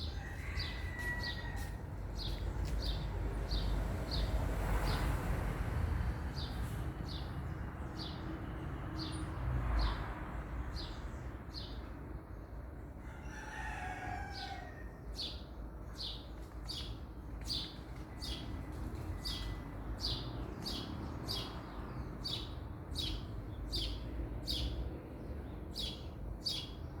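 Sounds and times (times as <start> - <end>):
distant rooster crowing: 0.0 - 2.3, 13.0 - 15.2.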